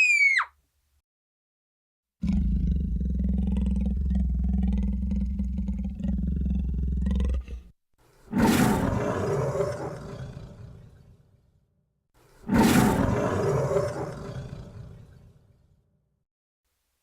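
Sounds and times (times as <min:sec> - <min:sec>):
monster roar: 0:02.2 - 0:07.7, 0:08.4 - 0:11.1, 0:12.5 - 0:15.3.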